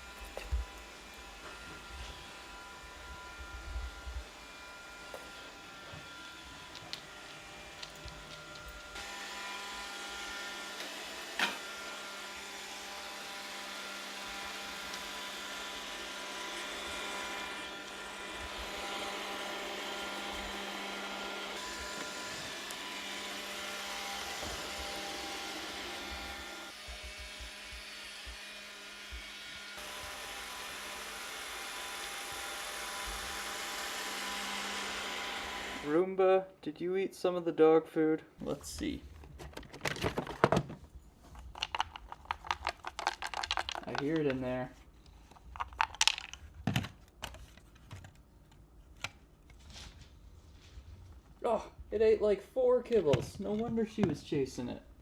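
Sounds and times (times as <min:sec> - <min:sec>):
robot vacuum motor whine: 0:00.0 - 0:36.0.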